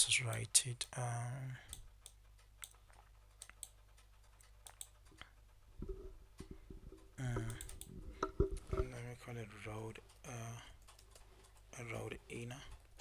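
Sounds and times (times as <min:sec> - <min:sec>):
mouse clicks: 0:01.7 - 0:03.8, 0:04.4 - 0:08.8
keyboard typing: 0:01.7 - 0:09.0
low knocks: 0:05.8 - 0:09.0.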